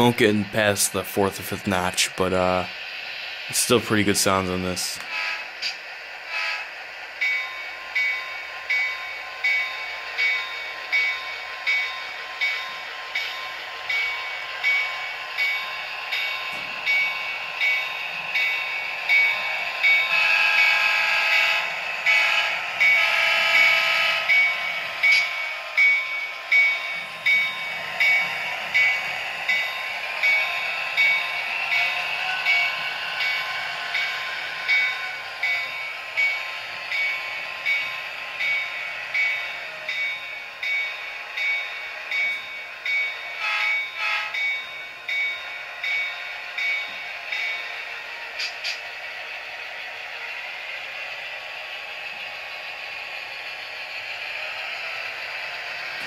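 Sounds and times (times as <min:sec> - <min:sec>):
locomotive bell ringing: 0:00.0 - 0:02.7, 0:03.6 - 0:05.0, 0:07.2 - 0:48.8
faint diesel engine: 0:00.0 - 0:56.0
horn blasts: 0:43.4 - 0:44.4.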